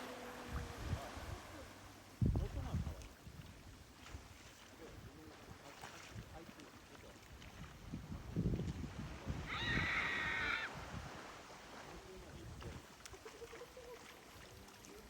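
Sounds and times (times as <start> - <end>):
wind rumble on microphone: 0.3 - 12.9
high animal call: 9.5 - 10.7.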